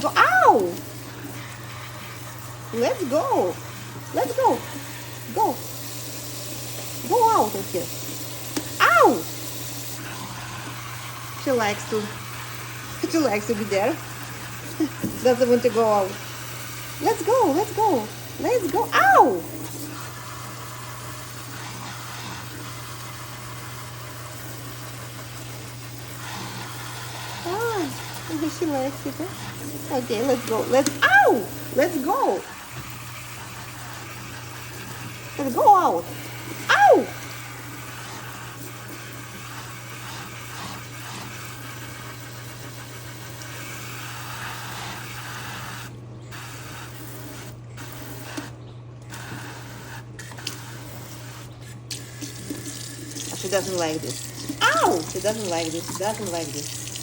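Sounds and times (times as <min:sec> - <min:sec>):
tap running into sink: 0:51.9 - 0:57.0.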